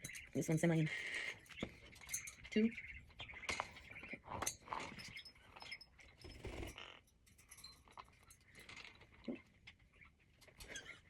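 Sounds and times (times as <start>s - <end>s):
metal cage parts clinking: 4.4s - 9.0s.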